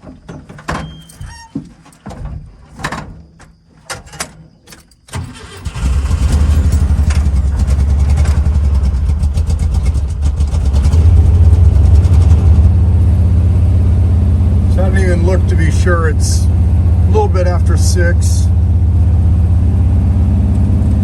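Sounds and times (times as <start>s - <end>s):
car engine cranking and idling: 4.8s - 21.0s.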